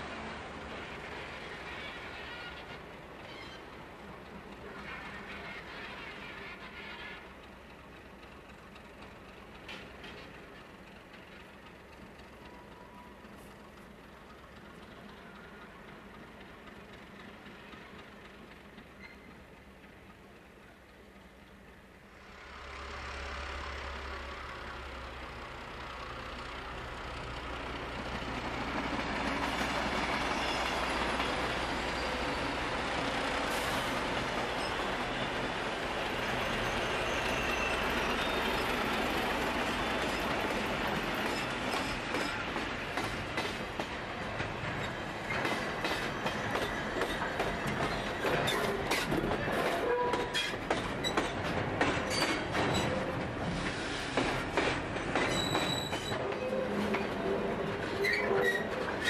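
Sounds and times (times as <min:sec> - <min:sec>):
diesel locomotive engine hum: 0:00.0 - 0:59.0
passing train noise: 0:00.0 - 0:59.0
wheels clicking over rail joints: 0:40.0 - 0:59.0.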